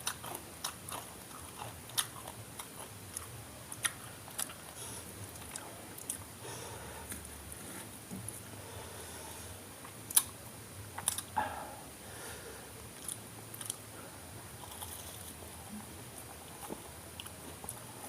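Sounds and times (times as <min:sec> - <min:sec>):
chewing ticks: 0:00.0 - 0:06.2
biting crisp fried snacks: 0:00.0 - 0:06.3, 0:11.0 - 0:11.4.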